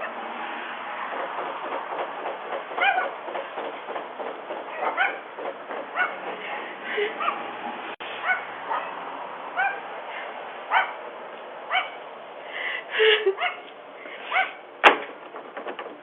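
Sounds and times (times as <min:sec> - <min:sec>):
small dog barking and yipping: 0:02.7 - 0:03.2, 0:04.7 - 0:05.3, 0:05.9 - 0:06.3, 0:08.2 - 0:09.0, 0:09.6 - 0:09.9, 0:10.7 - 0:11.0, 0:11.7 - 0:12.0, 0:13.4 - 0:13.7, 0:14.3 - 0:14.6.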